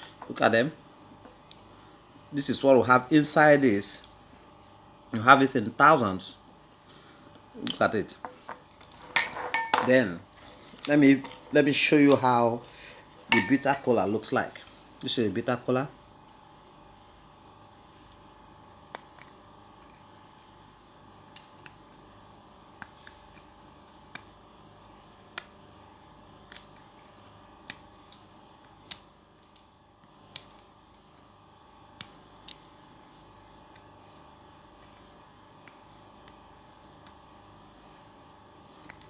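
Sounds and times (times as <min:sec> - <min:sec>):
nut skin peeling clicks: 0:26.5 - 0:26.8, 0:28.9 - 0:29.6, 0:30.3 - 0:30.7, 0:32.0 - 0:32.7.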